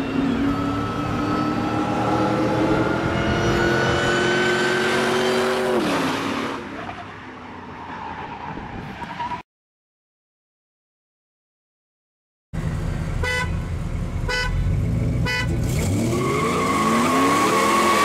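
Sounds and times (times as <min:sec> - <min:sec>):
high supercharger whine: 0:00.0 - 0:05.8.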